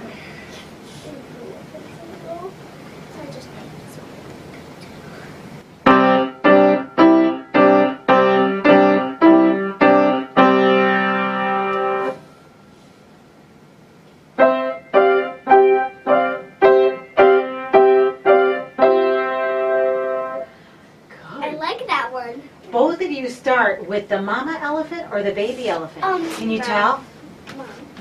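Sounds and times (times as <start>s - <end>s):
slow piano chords: 5.8s - 12.3s, 14.4s - 20.5s.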